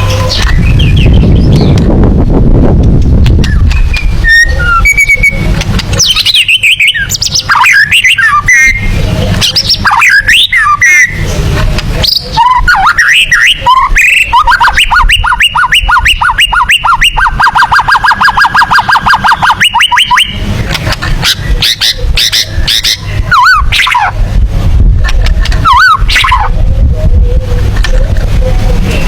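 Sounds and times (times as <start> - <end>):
bird singing whistled notes: 0.0 - 1.8, 3.4 - 11.2, 12.0 - 20.4
steady low rumble: 0.0 - 29.0.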